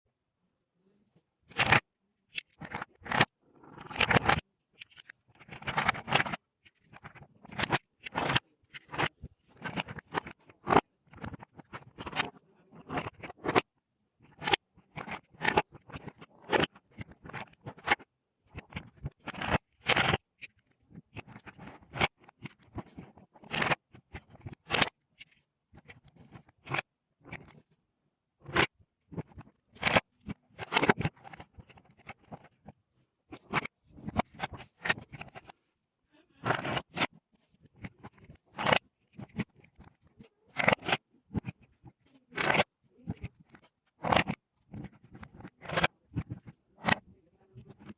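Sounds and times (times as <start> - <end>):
plastic bricks clicking and snapping: 1.5 - 25.0, 28.4 - 35.5, 36.4 - 47.9
plastic pieces scraping: 2.4 - 13.7, 36.4 - 47.9.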